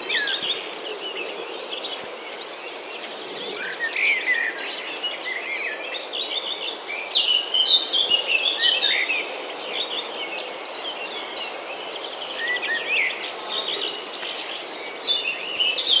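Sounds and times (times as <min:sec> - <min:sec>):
birds chirping and calling: 0:10.7 - 0:16.0.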